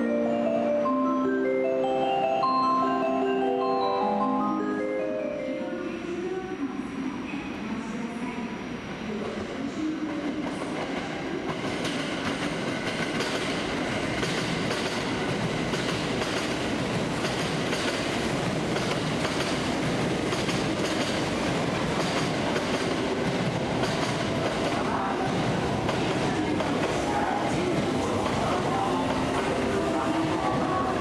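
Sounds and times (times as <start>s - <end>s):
train wheels clicking over rail joints: 11.5s - 24.7s.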